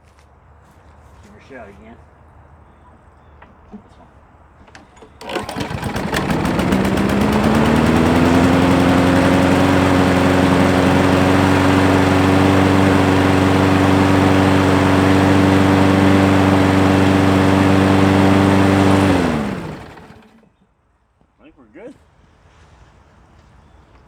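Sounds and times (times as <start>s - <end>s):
lawn mower engine running: 4.7s - 20.4s.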